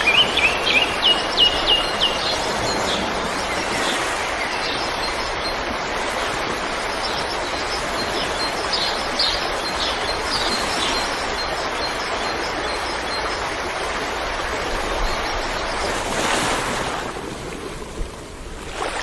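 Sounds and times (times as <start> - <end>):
river water flowing: 0.0 - 19.0.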